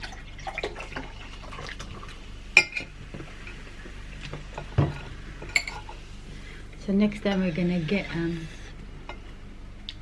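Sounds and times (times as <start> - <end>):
tableware clinking: 4.6 - 6.0.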